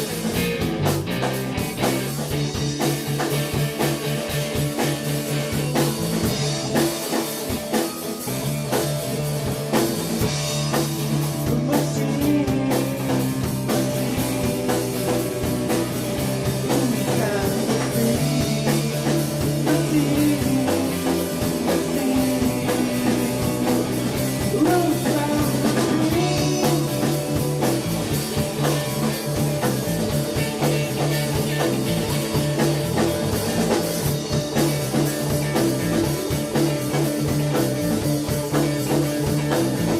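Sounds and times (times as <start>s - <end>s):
bass guitar: 0.0s - 39.9s
drum kit: 0.0s - 39.9s
electric guitars: 0.0s - 39.9s
person singing: 11.4s - 13.6s, 16.7s - 23.4s, 24.4s - 27.2s.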